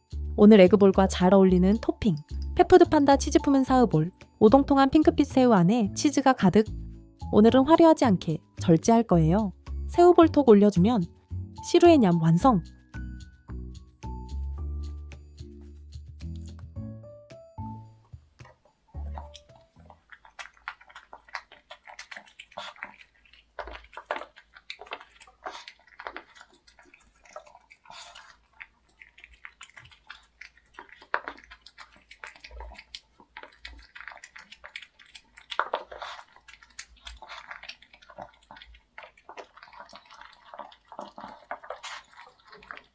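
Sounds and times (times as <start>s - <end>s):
dog chewing and licking: 18.1s - 42.9s.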